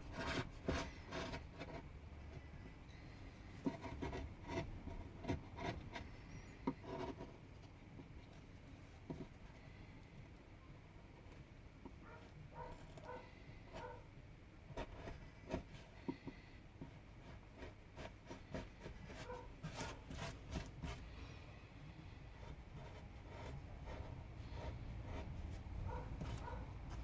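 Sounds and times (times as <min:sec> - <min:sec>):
carving tool scraping wood: 0:00.0 - 0:01.9, 0:03.5 - 0:07.3, 0:17.3 - 0:21.2, 0:22.4 - 0:27.0.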